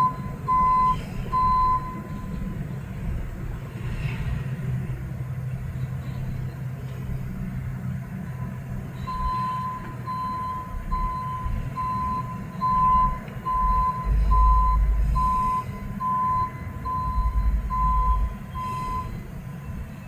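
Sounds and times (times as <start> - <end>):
truck backup alarm beeping: 0.0 - 3.4, 8.2 - 20.0
truck engine rumbling: 0.0 - 20.0.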